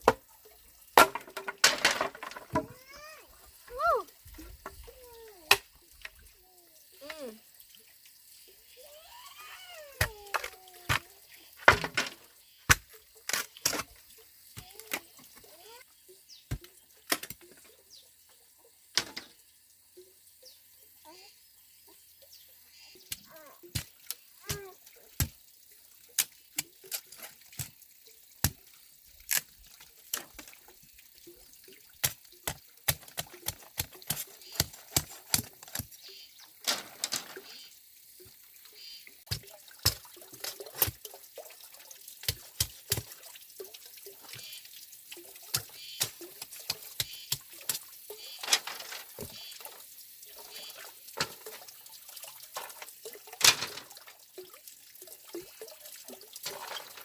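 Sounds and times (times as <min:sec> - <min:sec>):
water splashing and dripping: 0:00.0 - 0:20.3, 0:22.0 - 0:57.0.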